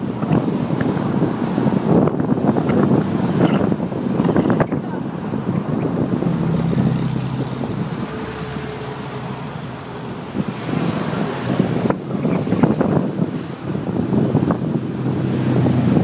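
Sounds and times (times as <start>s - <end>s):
car engines driving past: 0.0s - 13.7s.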